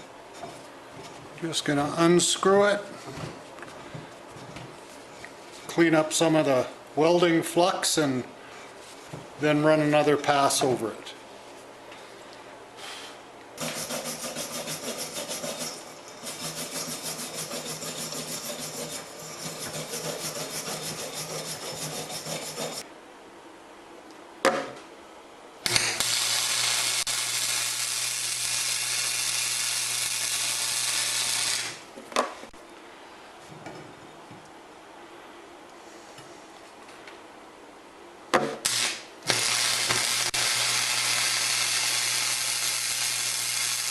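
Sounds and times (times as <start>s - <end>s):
welder hissing: 12.8s - 22.8s, 25.6s - 31.8s, 38.6s - 43.9s
wire brush scrubbing metal: 13.6s - 22.8s.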